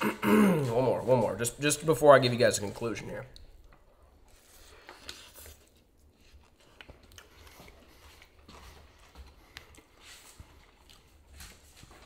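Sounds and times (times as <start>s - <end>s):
biting and chewing sandwich: 5.8s - 12.0s.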